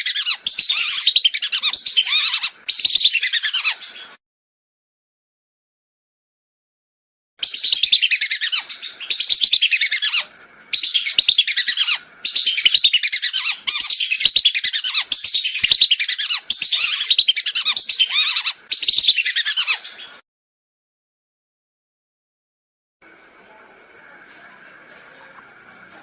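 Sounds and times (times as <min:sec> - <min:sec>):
whistling ducks calling: 0:00.0 - 0:04.0, 0:07.4 - 0:20.1.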